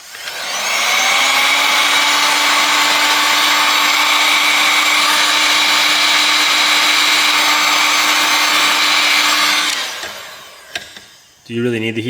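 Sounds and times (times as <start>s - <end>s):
hot-air gun blowing: 0.0s - 11.0s.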